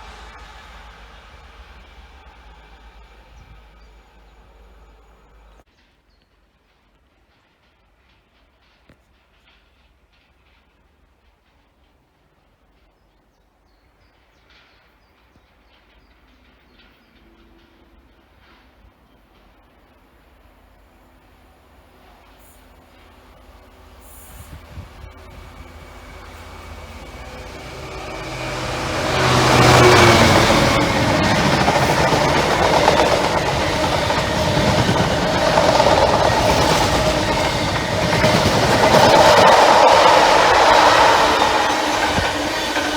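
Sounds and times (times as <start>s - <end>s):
train wheels on rails: 0.0s - 42.9s
birds chirping: 25.2s - 42.9s.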